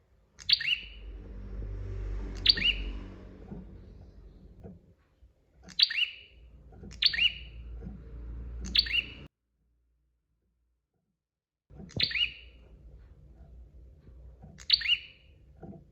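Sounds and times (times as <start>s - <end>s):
low background hum: 0.0s - 9.3s
bird sharp chirping calls: 0.4s - 1.2s, 2.3s - 3.6s, 5.7s - 7.8s, 8.6s - 9.3s, 11.9s - 12.6s, 14.6s - 15.3s.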